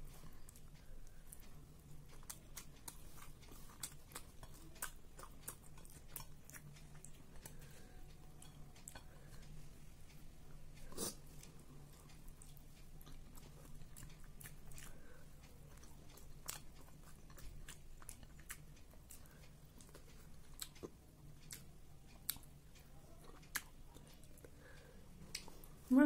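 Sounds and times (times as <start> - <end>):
low steady hum: 0.0 - 26.0
soft chewing: 0.0 - 26.0
small mouth clicks and smacks: 10.8 - 25.8.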